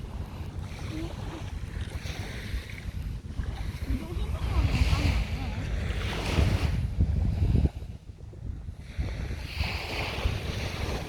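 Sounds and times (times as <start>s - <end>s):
wind buffeting microphone: 0.0s - 11.0s
surf washing onto beach: 3.5s - 7.8s.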